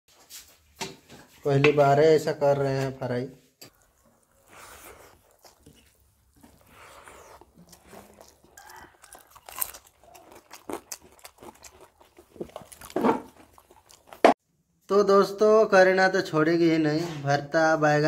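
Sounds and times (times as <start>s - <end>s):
people chewing food: 3.6s - 14.4s.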